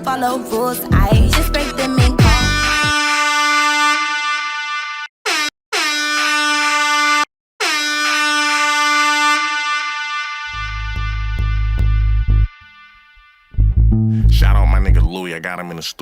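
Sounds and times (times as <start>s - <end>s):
bass line with pulsing beat: 0.9s - 3.0s, 10.6s - 12.5s, 13.6s - 15.1s
air horn blasts: 2.2s - 13.8s.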